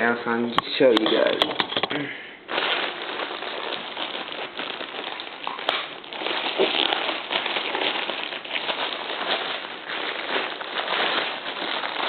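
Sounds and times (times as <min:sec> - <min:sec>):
packaging crinkling: 0:02.5 - 0:12.0.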